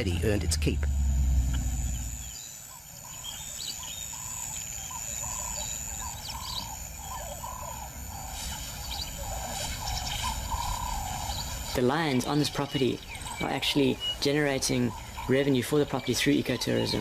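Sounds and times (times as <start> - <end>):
high bird chirps: 1.6 - 14.2.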